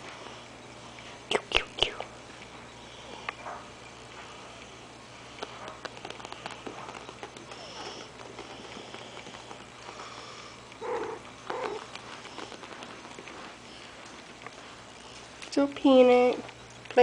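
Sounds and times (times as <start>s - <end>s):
paws clicking and rustling: 2.3s - 17.0s
puppy vocal sounds: 5.3s - 15.4s.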